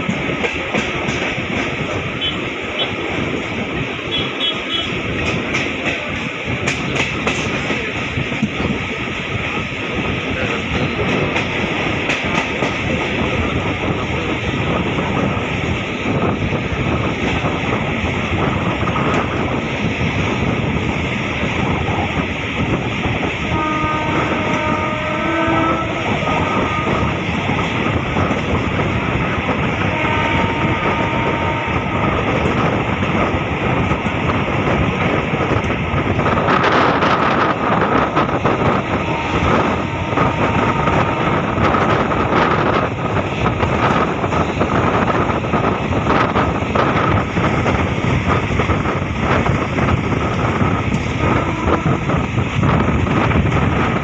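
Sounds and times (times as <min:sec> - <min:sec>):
train wheels rumbling on rails: 0:00.0 - 0:54.0
train horn: 0:02.2 - 0:03.0, 0:04.1 - 0:05.0, 0:23.4 - 0:27.6, 0:29.6 - 0:32.5, 0:38.6 - 0:42.3, 0:51.1 - 0:52.3
rushing air: 0:07.8 - 0:54.0.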